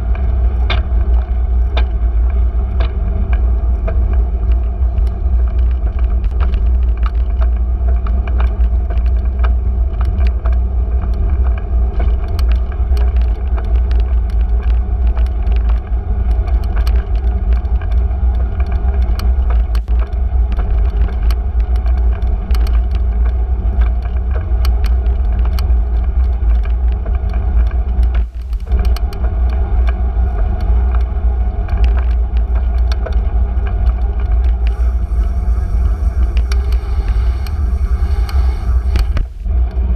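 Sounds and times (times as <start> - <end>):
bicycle rumbling on street: 0.0 - 39.9
small rattling clicks: 2.8 - 30.0.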